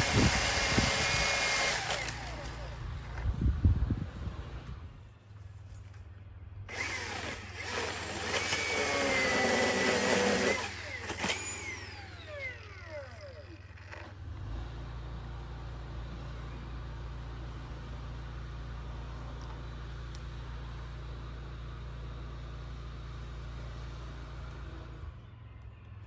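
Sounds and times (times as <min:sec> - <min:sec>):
electric chainsaw running: 0:00.0 - 0:02.8, 0:06.7 - 0:14.4
motor winding down whine: 0:00.0 - 0:02.8, 0:06.7 - 0:14.4.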